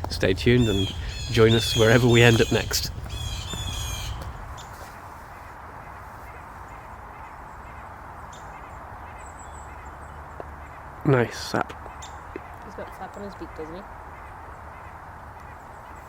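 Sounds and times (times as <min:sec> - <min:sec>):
bird call: 0:00.0 - 0:10.8
outdoor background hiss: 0:00.0 - 0:16.0.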